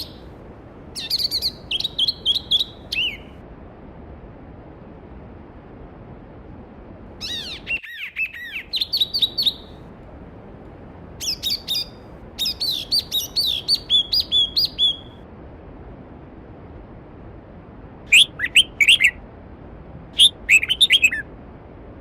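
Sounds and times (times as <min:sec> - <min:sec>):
songbird whistling: 0:00.0 - 0:00.2, 0:01.0 - 0:03.4, 0:07.2 - 0:09.8, 0:11.2 - 0:15.2, 0:18.1 - 0:19.2, 0:20.2 - 0:21.3.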